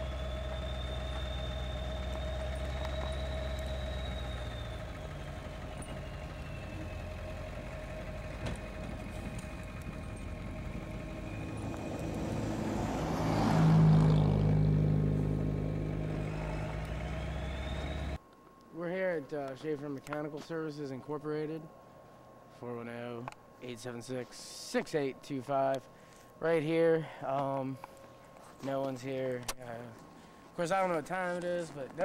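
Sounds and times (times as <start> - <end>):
low engine hum: 0.0 - 18.2
vehicle driving past: 0.0 - 18.2.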